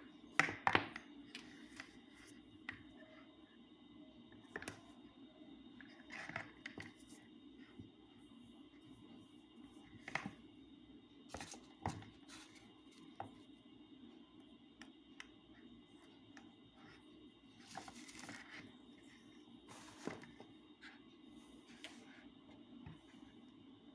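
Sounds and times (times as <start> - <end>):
low room hum: 0.0 - 23.9.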